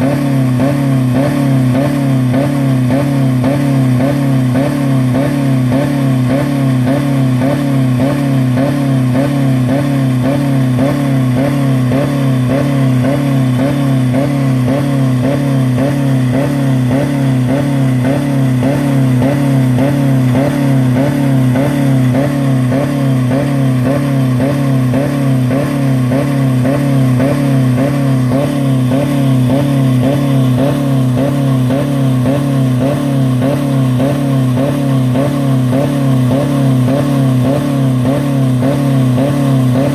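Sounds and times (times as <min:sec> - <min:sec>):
car engine revving at limiter: 0:00.0 - 0:39.9.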